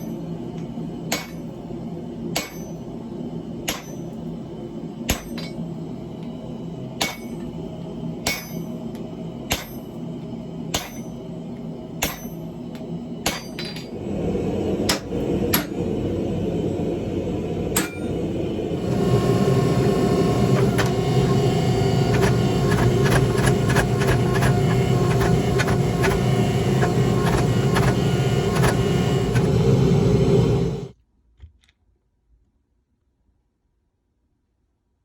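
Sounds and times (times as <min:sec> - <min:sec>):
loud steady mechanical noise: 0:00.0 - 0:31.0
steady low hum: 0:00.0 - 0:31.0
hammer ringing on anvil: 0:02.4 - 0:02.8, 0:08.3 - 0:08.7, 0:17.8 - 0:18.1.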